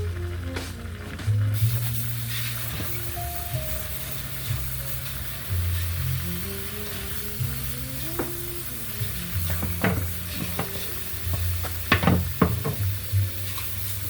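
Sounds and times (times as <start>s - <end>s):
background music with bass: 0.0s - 14.0s
food sizzling in a pan: 0.0s - 14.0s
utensil stirring food: 1.7s - 14.0s
utensil knocking against pan: 8.2s - 8.4s, 9.4s - 13.0s.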